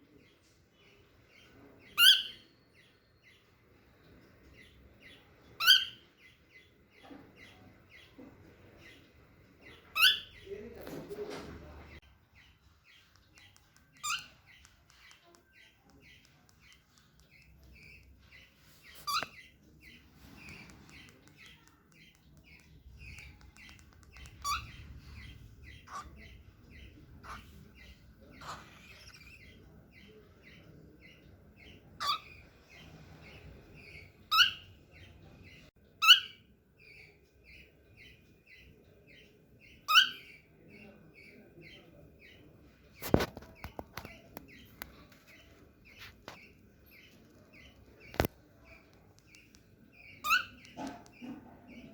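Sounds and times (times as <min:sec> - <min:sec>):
cockatiel soft chirps: 0:00.8 - 0:02.8, 0:04.6 - 0:06.1, 0:09.6 - 0:10.6, 0:12.3 - 0:35.1, 0:36.0 - 0:51.9
cockatiel sharp calls: 0:02.0 - 0:02.5, 0:05.6 - 0:06.0, 0:13.4 - 0:15.2, 0:18.9 - 0:27.5, 0:28.3 - 0:29.6, 0:32.0 - 0:32.4, 0:34.3 - 0:34.7, 0:36.0 - 0:36.4, 0:39.9 - 0:40.4, 0:50.0 - 0:51.4.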